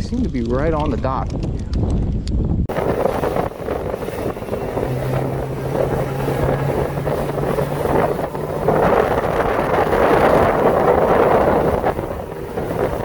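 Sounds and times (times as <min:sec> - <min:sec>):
gusty wind buffeting microphone: 0:00.0 - 0:13.0
low hum: 0:02.7 - 0:13.0.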